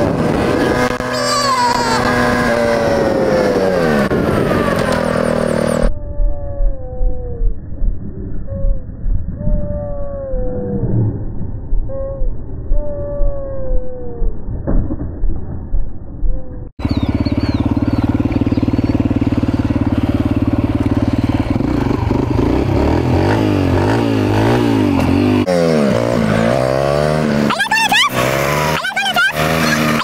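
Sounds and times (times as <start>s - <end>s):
small engine revving: 0.0s - 5.9s, 16.8s - 30.0s.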